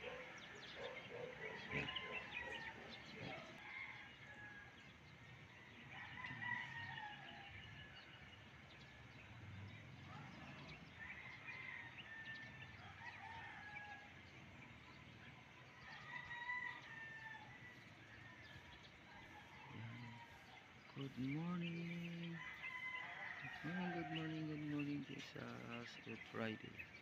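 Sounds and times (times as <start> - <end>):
faint drawn-out bird calls: 0.0 - 4.6.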